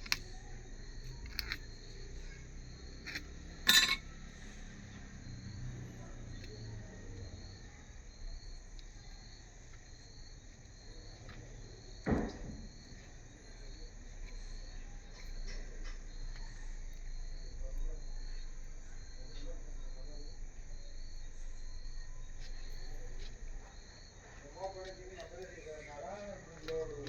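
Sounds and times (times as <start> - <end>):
insect chirping: 0.0 - 27.0
thump: 12.0 - 13.0.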